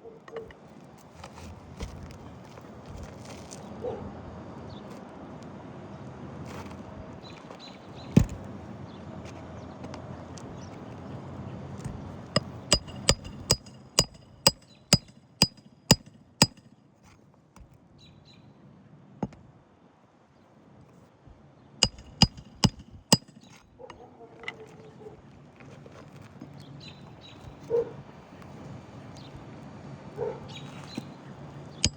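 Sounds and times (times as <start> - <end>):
hammer striking nails: 8.2 - 8.4, 11.8 - 16.7, 21.8 - 23.5.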